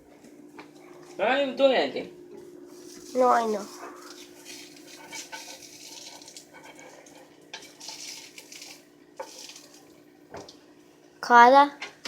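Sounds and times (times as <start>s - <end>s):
low steady hum: 0.0s - 11.5s
utensils and dishes clinking: 2.7s - 9.7s.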